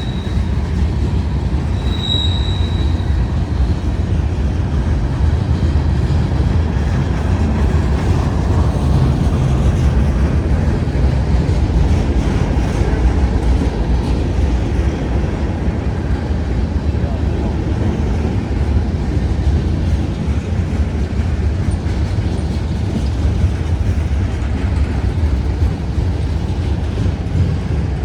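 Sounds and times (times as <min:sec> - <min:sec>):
high wheel squeal: 0:00.0 - 0:00.9, 0:01.6 - 0:03.4
freight train rumbling on rails: 0:00.0 - 0:28.0.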